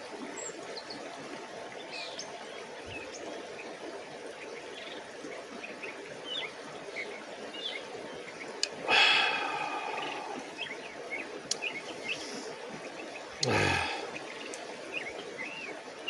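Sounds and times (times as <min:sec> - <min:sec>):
river water rushing: 0:00.0 - 0:16.0
small birds chirping: 0:01.8 - 0:16.0.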